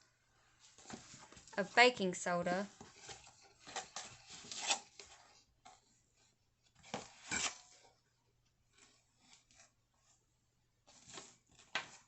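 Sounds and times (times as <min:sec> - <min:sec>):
measuring spoon scraping containers: 0:07.0 - 0:07.8.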